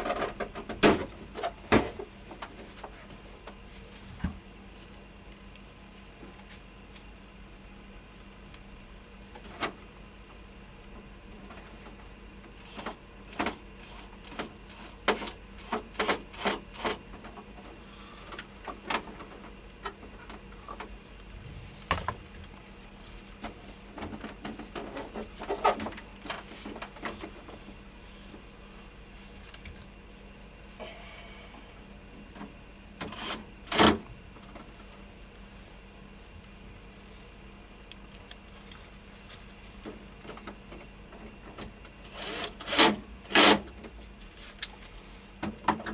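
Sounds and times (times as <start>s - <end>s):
low steady hum: 20.0s - 24.6s, 27.9s - 32.6s.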